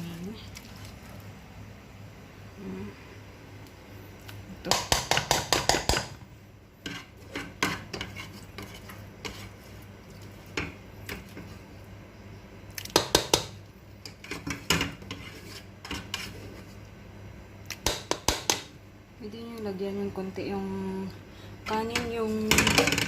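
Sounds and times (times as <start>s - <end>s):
spoon scraping cooking pot: 6.8s - 11.7s, 14.0s - 16.9s.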